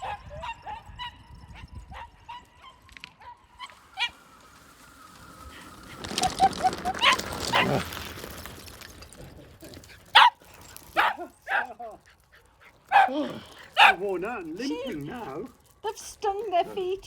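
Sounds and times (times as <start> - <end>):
faint squeaks: 2.3 - 12.8
rustling and scuffling: 3.6 - 17.0.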